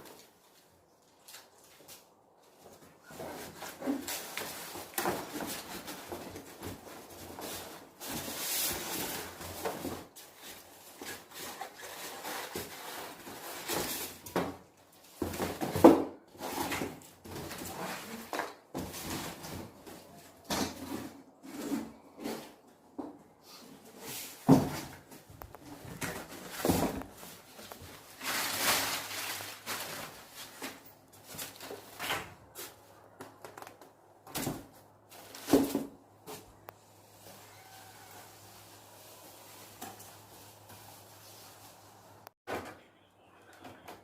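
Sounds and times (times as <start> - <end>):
packaging rustling and scraping: 1.4 - 22.8, 23.5 - 33.2.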